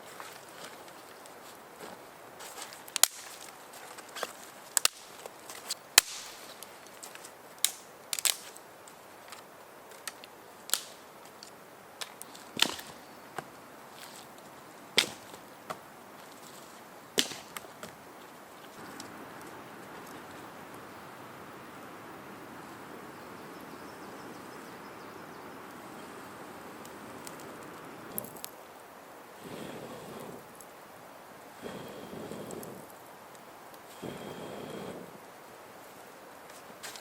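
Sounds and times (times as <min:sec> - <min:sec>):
dry wood cracking: 0:00.2 - 0:18.0.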